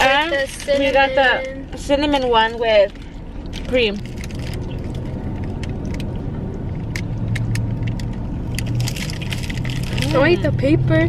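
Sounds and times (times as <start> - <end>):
car interior hum: 0.0 - 11.0
paper wrapper crinkling: 2.9 - 5.9, 8.6 - 10.3.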